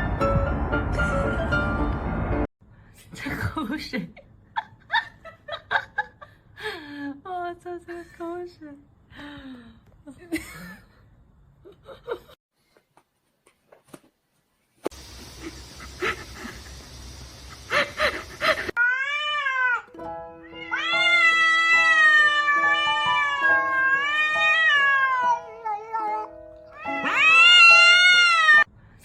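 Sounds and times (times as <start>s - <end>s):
cat meowing: 18.8s - 28.7s.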